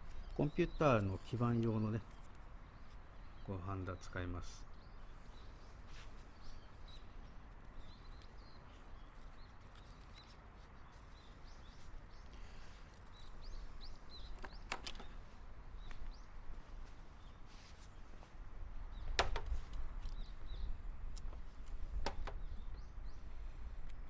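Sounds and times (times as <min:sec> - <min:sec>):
small birds chirping: 0:00.0 - 0:24.0
sharp click: 0:19.2 - 0:20.2.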